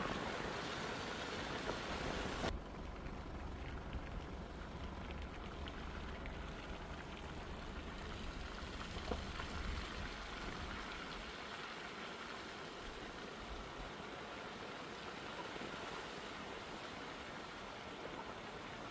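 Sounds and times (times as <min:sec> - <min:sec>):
steady rain falling: 0:00.0 - 0:18.9
low rumble: 0:02.3 - 0:10.8.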